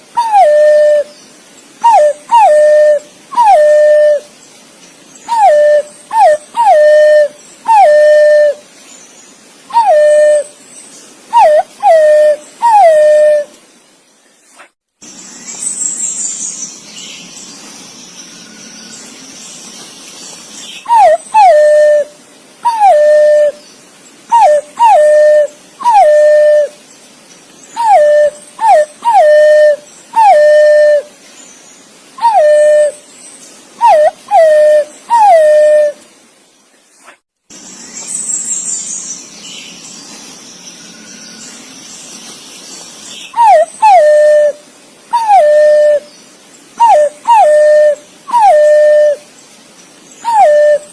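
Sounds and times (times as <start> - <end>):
faint hiss: 0.0 - 50.9
pigeon whistling call: 0.2 - 1.1, 1.8 - 4.2, 5.3 - 8.6, 9.7 - 10.5, 11.3 - 13.5, 20.9 - 23.6, 24.3 - 26.7, 27.8 - 31.1, 32.2 - 33.0, 33.8 - 36.0, 43.4 - 46.1, 46.8 - 49.2, 50.2 - 50.9.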